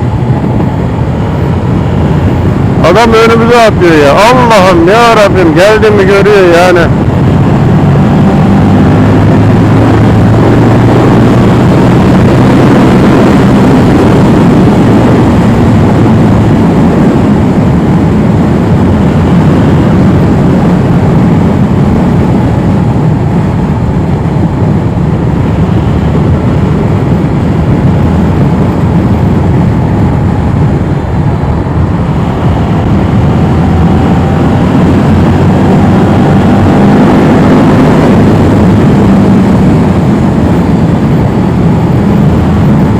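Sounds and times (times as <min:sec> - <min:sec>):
motorcycle engine: 0:00.0 - 0:05.0, 0:05.6 - 0:42.9
wind rush on microphone: 0:00.0 - 0:42.9.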